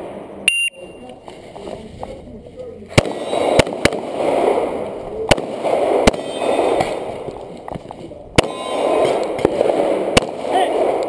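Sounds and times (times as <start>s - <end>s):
fainter gunshots: 2.9s - 7.2s
loud pistol shots: 2.9s - 7.4s, 8.4s - 11.0s.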